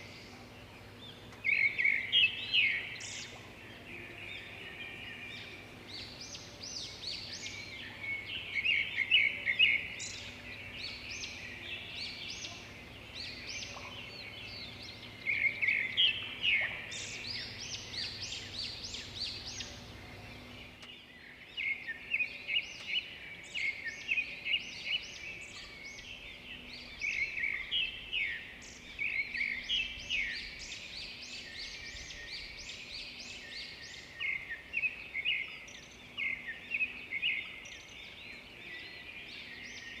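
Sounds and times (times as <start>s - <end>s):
faint low hum: 0.0s - 23.6s
birds chirping and trilling: 0.0s - 40.0s.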